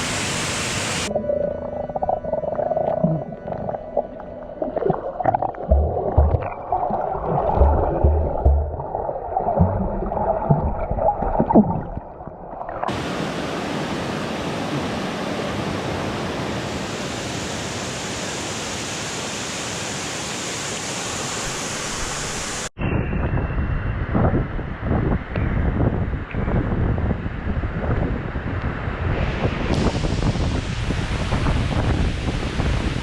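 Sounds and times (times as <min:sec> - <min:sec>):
muffled water sloshing: 0:01.2 - 0:13.0.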